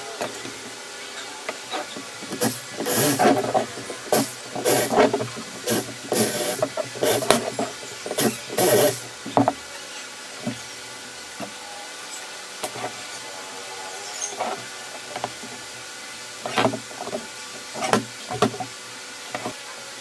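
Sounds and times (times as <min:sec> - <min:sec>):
hand tool hissing strokes on wood: 0:01.8 - 0:09.2.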